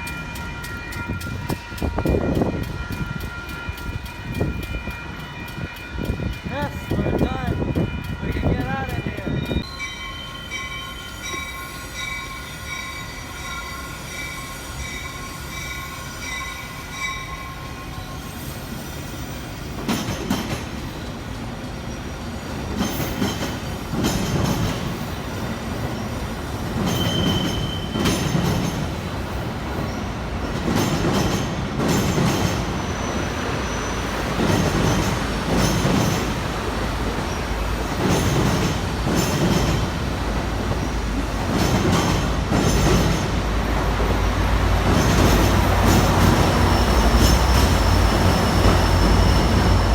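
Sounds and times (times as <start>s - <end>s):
train wheels squealing: 7.6s - 39.9s, 44.8s - 49.9s
train wheels clattering over rails: 18.9s - 49.9s.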